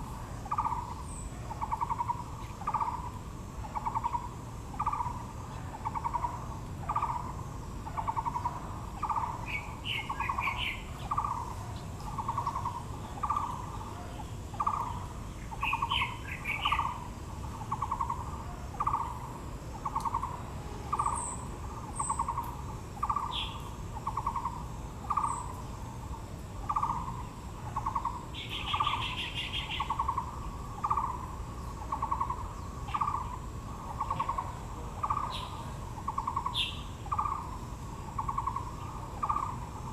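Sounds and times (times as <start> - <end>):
bird pulsed call: 0.0 - 39.9
buzzy bird trill: 8.0 - 19.2, 19.8 - 39.7.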